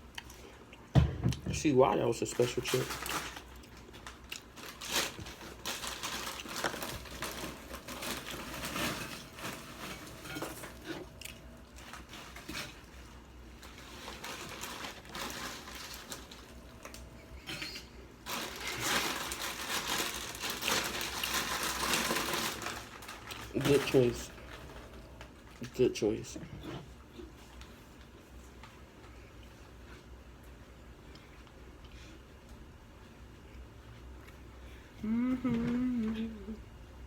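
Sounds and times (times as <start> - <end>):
potato chips crunched and chewed: 2.2 - 17.1, 18.2 - 25.8.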